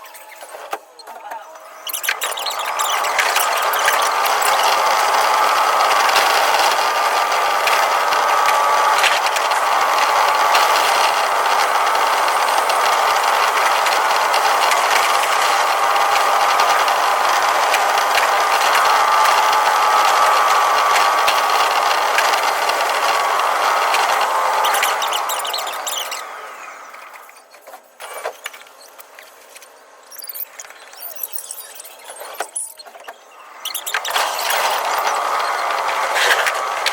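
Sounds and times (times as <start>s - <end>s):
electric train running: 0.2s - 36.9s
train clicks: 1.9s - 26.2s.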